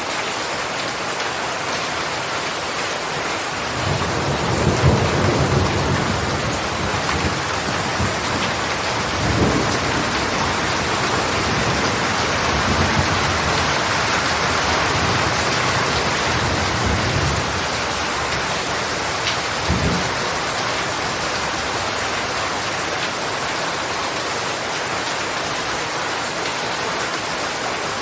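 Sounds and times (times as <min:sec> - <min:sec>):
heavy rain falling: 0:00.0 - 0:28.0
thunder rumbling: 0:03.7 - 0:22.2.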